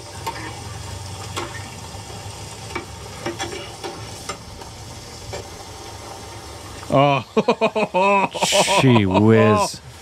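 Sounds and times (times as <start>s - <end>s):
food frying in hot oil: 0.0s - 10.0s
metal spatulas scraping pan: 2.7s - 4.4s.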